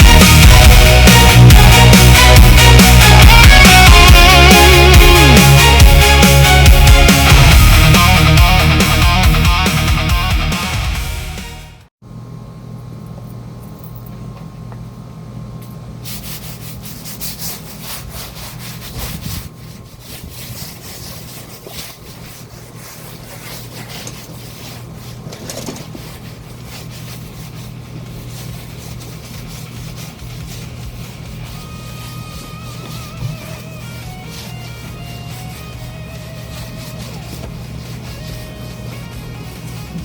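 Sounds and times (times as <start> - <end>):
background music: 0.0 - 11.8
steady low hum: 12.1 - 40.0
scraping on stone paving: 16.8 - 40.0.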